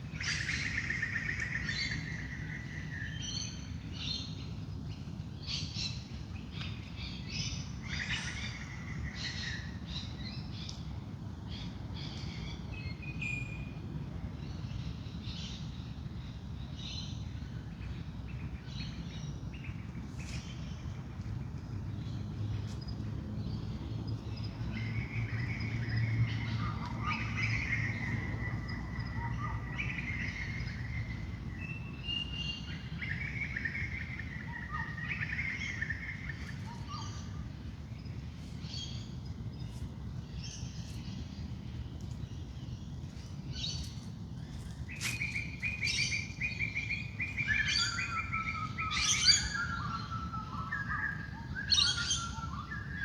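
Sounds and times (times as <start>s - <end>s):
birds singing: 14.4s - 53.0s.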